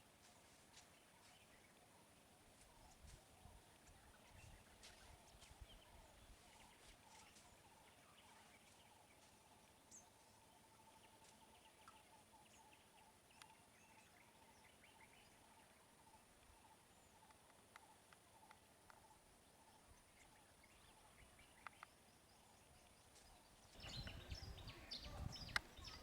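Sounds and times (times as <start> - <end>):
faint clicks: 13.3 - 13.6, 17.2 - 19.1, 21.6 - 22.0.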